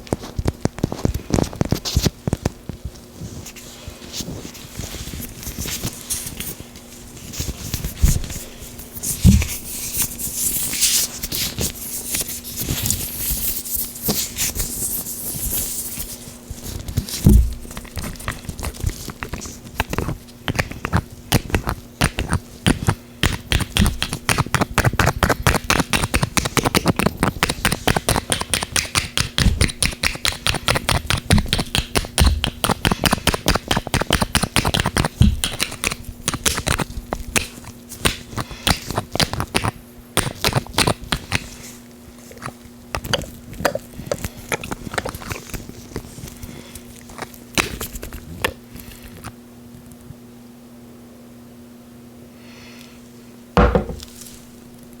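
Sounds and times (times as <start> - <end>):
gloved hands rubbing: 3.2 - 39.7
low thumps: 53.6 - 54.1.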